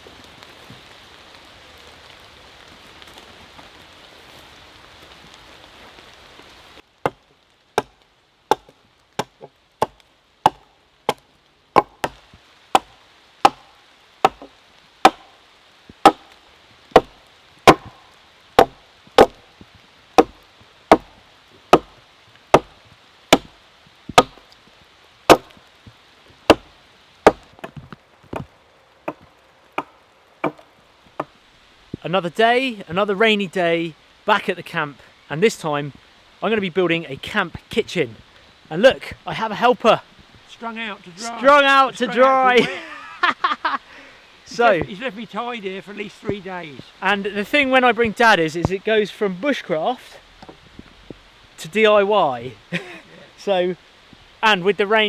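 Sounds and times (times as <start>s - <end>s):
rain hiss: 0.0s - 55.0s
chopping strikes on wood: 7.8s - 11.2s, 11.8s - 12.2s, 12.8s - 15.3s, 16.0s - 16.4s, 17.0s - 18.0s, 18.6s - 19.4s, 20.2s - 21.1s, 21.7s - 23.5s, 24.1s - 24.4s, 25.3s - 25.6s, 26.5s - 28.5s, 29.1s - 30.6s.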